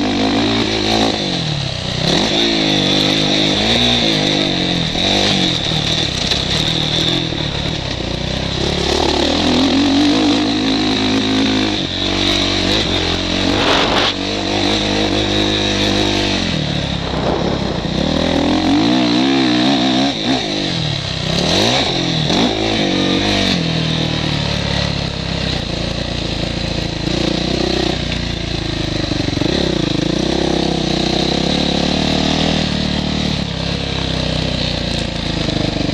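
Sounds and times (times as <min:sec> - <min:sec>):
motocross bike engine revving: 0:00.0 - 0:35.9
wind rushing noise: 0:12.7 - 0:15.0, 0:15.6 - 0:19.8.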